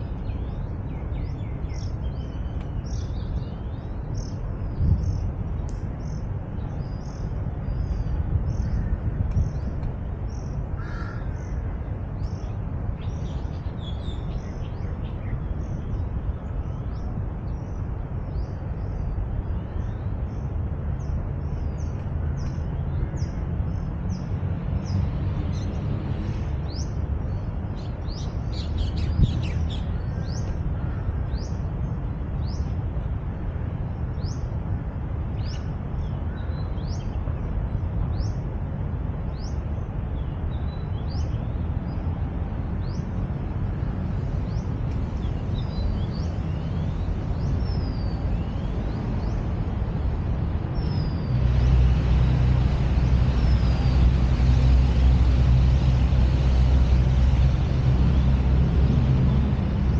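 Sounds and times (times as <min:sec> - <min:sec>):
city traffic rumble: 0:00.0 - 0:59.9
other birds calling: 0:10.3 - 0:11.6.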